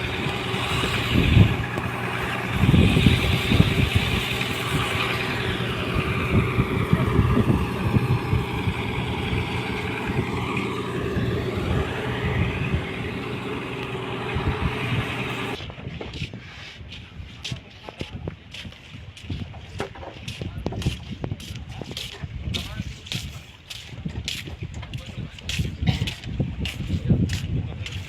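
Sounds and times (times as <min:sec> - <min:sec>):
boat diesel engine running: 0:00.0 - 0:15.6.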